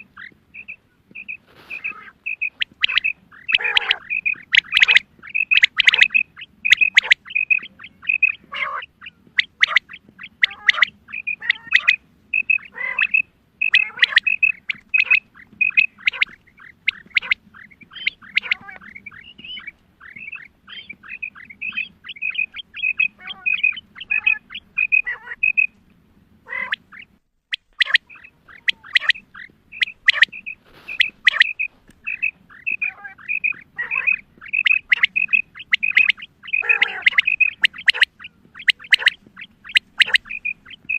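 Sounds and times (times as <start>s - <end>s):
quail chirping calls: 0.0s - 40.9s.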